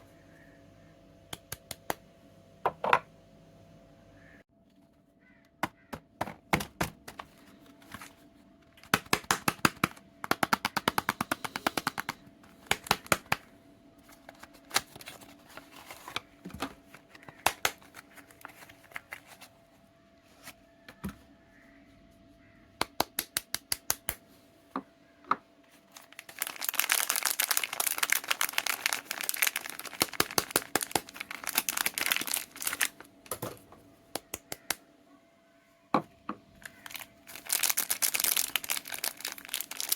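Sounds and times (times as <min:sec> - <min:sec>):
packaging crackling: 0:08.8 - 0:13.4, 0:14.0 - 0:19.4, 0:25.9 - 0:33.1, 0:36.6 - 0:39.9.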